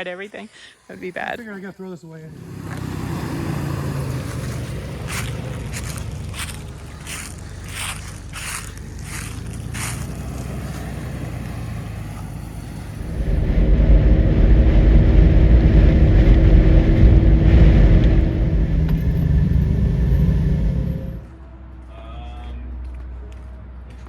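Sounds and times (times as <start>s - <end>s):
vehicle engine running: 2.3s - 21.4s.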